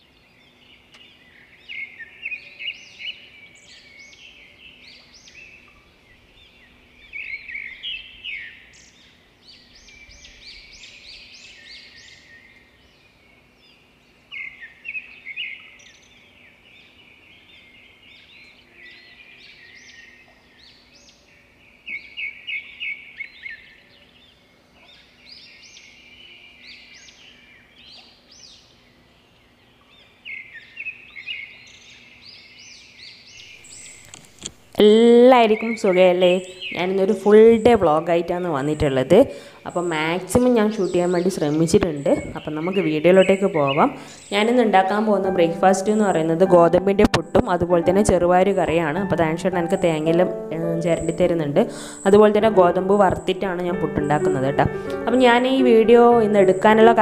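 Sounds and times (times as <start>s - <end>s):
birds chirping and calling: 29.7s - 34.6s, 35.4s - 57.0s.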